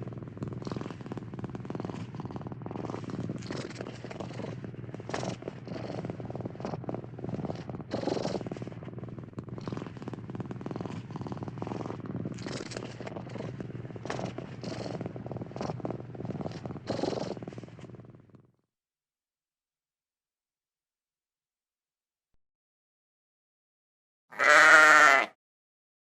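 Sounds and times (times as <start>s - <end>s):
cat purring: 0.0s - 18.7s.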